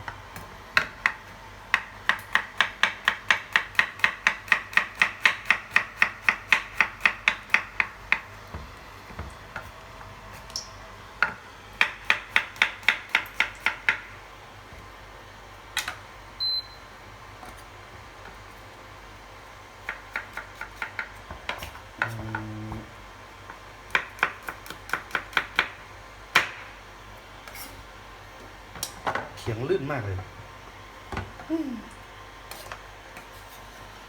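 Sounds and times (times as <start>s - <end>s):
knife chopping on cutting board: 0.8s - 8.2s.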